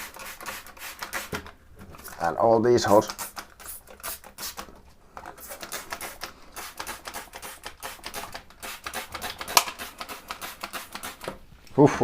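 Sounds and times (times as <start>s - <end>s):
spray bottle hissing: 0.0s - 1.5s, 2.9s - 4.7s, 5.3s - 11.3s.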